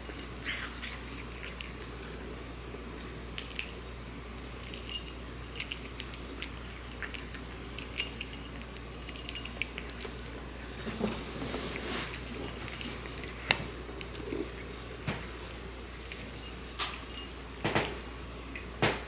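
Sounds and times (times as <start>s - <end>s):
food dish clinking: 15.0s - 19.0s.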